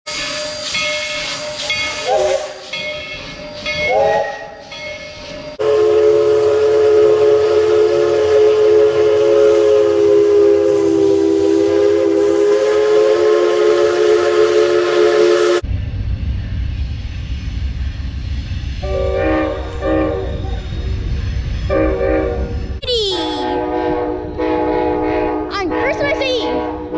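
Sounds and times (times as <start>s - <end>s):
train rumbling: 0.0s - 26.9s
steam hissing: 0.1s - 15.6s
train whistle blasts: 2.0s - 2.6s, 3.9s - 4.6s, 5.6s - 15.6s, 18.8s - 20.7s, 21.7s - 22.5s, 23.3s - 25.5s
multi-note train horn: 5.6s - 15.6s, 18.8s - 20.4s, 21.7s - 22.5s, 23.1s - 26.9s.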